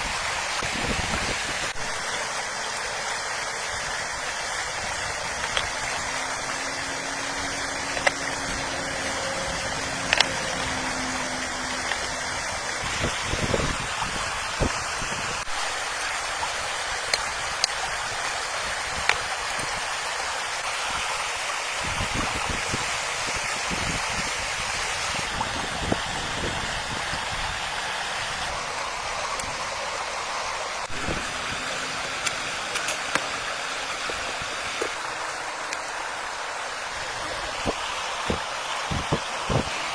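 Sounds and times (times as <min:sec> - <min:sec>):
running water: 0:00.0 - 0:39.9
sharp clicks: 0:05.4 - 0:06.7, 0:10.0 - 0:10.7, 0:17.1 - 0:18.4.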